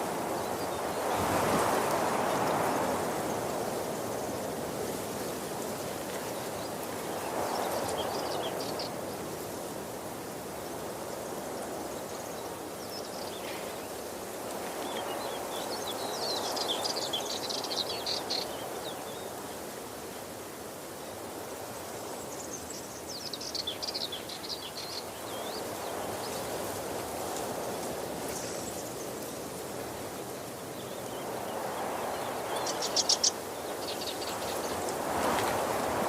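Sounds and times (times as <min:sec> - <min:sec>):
small birds chirping: 0:06.1 - 0:09.0, 0:14.8 - 0:19.4, 0:22.1 - 0:26.6, 0:27.3 - 0:35.9.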